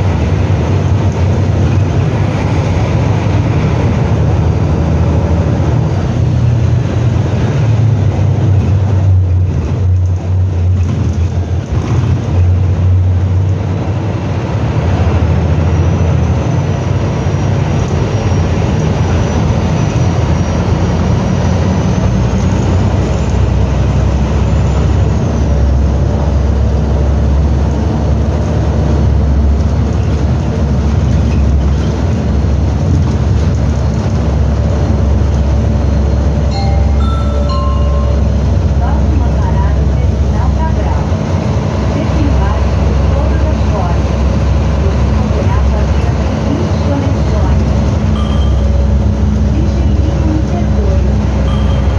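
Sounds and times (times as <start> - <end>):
bus engine running: 0.0 - 51.9
high whine: 48.1 - 51.9.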